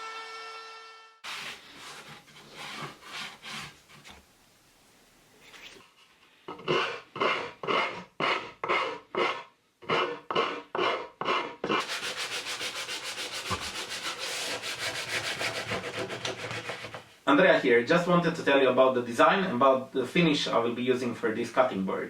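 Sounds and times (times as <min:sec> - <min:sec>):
wood scraping strokes: 0:01.2 - 0:04.3, 0:05.5 - 0:17.2.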